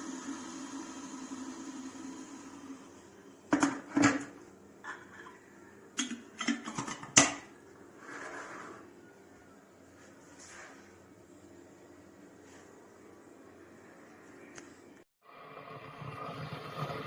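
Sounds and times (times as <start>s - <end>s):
metal pot and lid clinking: 6.0s - 7.5s.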